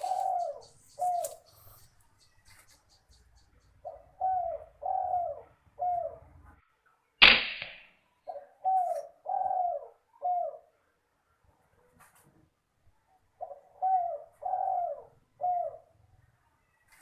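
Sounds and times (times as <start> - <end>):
dove cooing: 0.0 - 2.7, 3.7 - 6.4, 8.2 - 10.8, 13.4 - 16.0
air rifle gunshot: 7.2 - 7.9.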